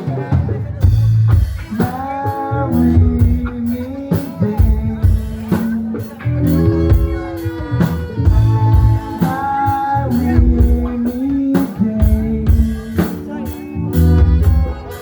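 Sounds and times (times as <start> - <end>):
drums keeping a steady beat: 0.0 - 15.0
rock band playing loudly: 0.0 - 15.0.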